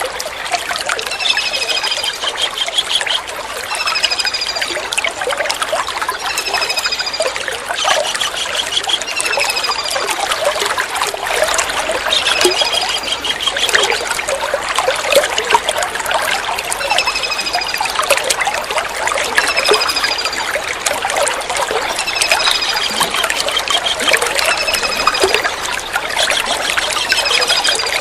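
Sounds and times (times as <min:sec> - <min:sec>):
trickling water: 0:00.0 - 0:28.0
kingfisher calling: 0:11.6 - 0:14.2, 0:21.9 - 0:28.0.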